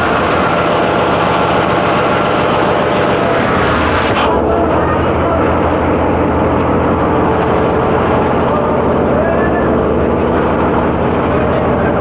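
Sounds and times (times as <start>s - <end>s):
ship engine machinery drone: 0.0s - 12.0s.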